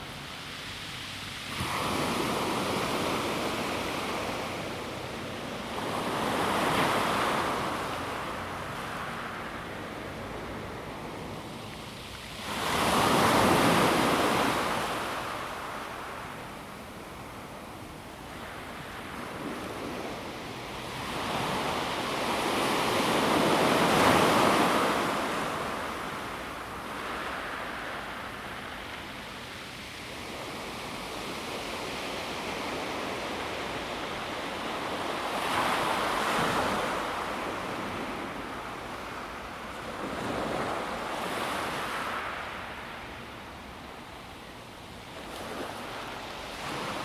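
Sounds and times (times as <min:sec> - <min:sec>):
waves on pebble beach: 0:01.3 - 0:04.8.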